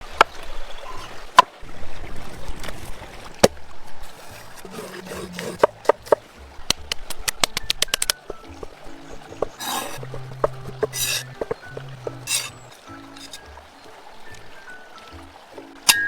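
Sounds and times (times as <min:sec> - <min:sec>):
blade chopping on wood: 0:04.3 - 0:06.2, 0:08.3 - 0:13.4.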